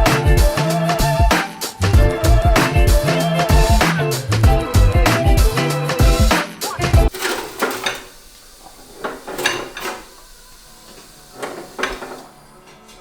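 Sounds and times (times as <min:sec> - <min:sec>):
music with heavy beat: 0:00.0 - 0:07.1
metal clanking and rattling: 0:07.1 - 0:13.0.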